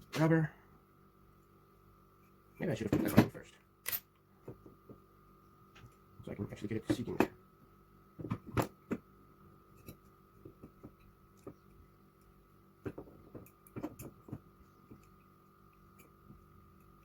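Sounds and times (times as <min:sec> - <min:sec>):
small clicks and taps of parts: 0:09.8 - 0:17.0.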